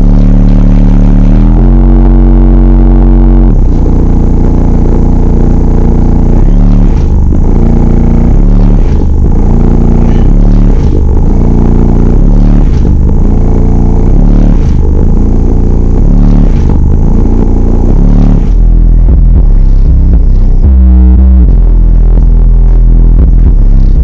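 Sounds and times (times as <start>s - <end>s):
bass-heavy music from subwoofer: 0.0s - 24.0s.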